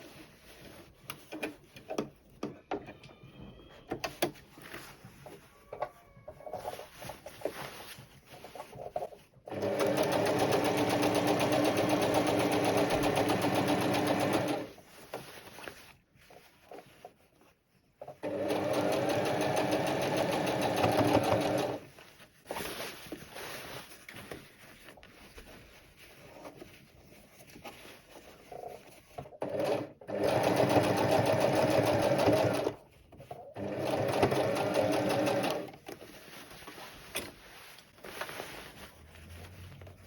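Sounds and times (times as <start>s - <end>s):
handling sounds: 0.0s - 9.5s, 14.7s - 18.2s, 21.4s - 29.4s, 35.3s - 40.0s
sewing machine stitching: 9.4s - 14.7s, 18.0s - 21.9s, 29.3s - 32.8s, 33.4s - 35.8s.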